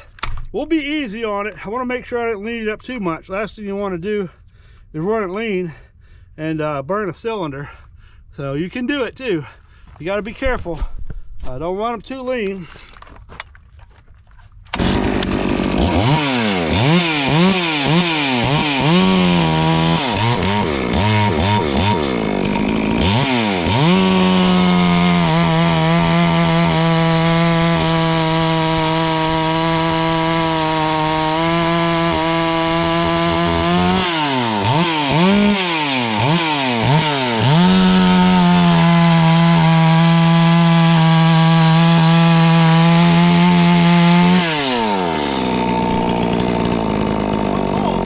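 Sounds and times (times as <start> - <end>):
chainsaw revving: 14.7 - 48.0.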